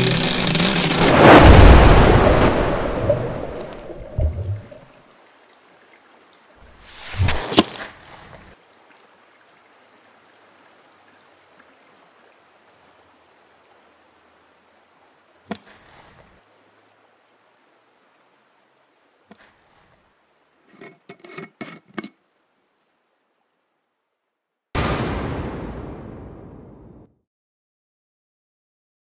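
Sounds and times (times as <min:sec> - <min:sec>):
jar lid clicking and scraping: 0:20.7 - 0:22.2.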